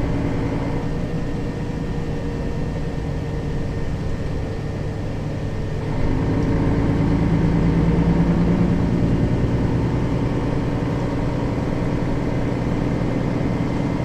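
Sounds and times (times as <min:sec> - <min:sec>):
bus engine droning: 0:00.0 - 0:14.0.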